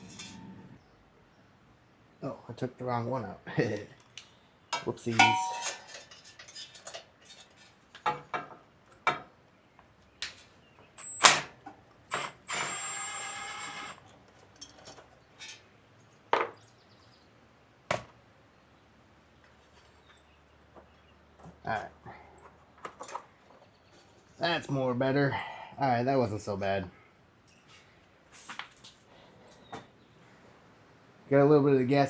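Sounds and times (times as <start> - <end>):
metal tools and parts clinking: 0.0 - 0.8, 4.8 - 8.4, 14.5 - 15.7
metallic ring: 0.0 - 0.8, 5.2 - 6.2.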